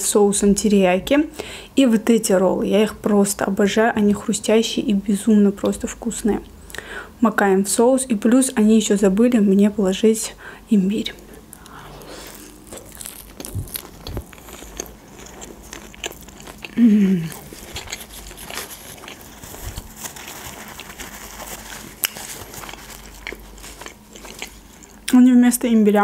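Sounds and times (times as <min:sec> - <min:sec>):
wet crunching while chewing: 0:11.5 - 0:25.2
person humming: 0:16.7 - 0:17.6.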